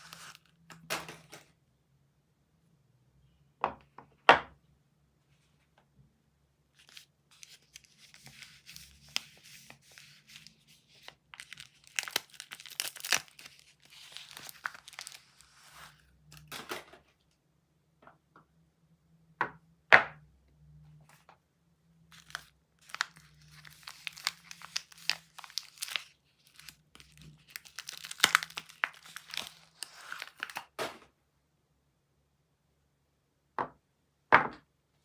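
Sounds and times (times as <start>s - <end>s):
wrapper crinkling and tearing: 0.0s - 0.7s, 6.8s - 16.6s, 22.1s - 30.8s.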